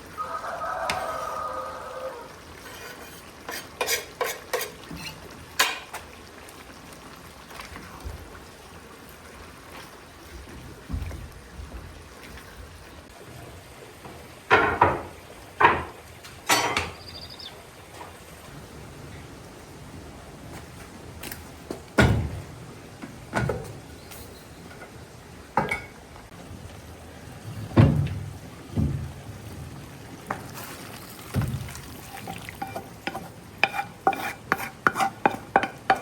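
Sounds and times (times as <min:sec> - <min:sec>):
sharp knocks and clatters: 0:14.5 - 0:17.0.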